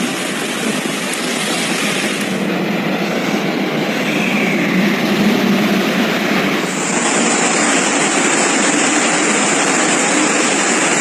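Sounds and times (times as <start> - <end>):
floodwater rushing: 1.2 - 8.7.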